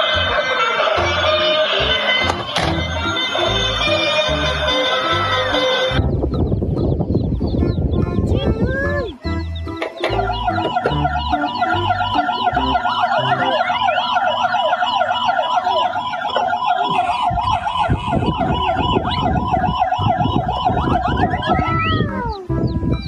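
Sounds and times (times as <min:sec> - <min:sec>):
siren warbling: 0:10.0 - 0:22.6
low rumbling: 0:16.9 - 0:23.0.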